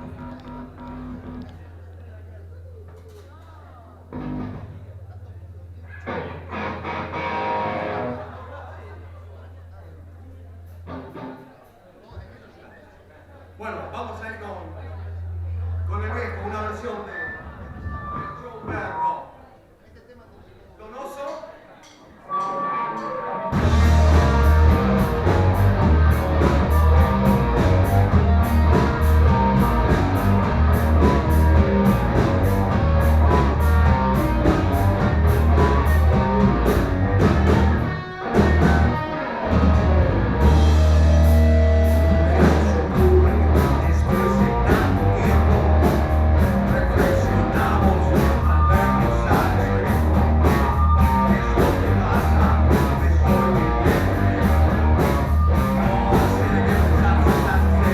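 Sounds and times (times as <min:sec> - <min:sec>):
loud rock music: 0:06.1 - 0:08.4, 0:22.3 - 0:57.9.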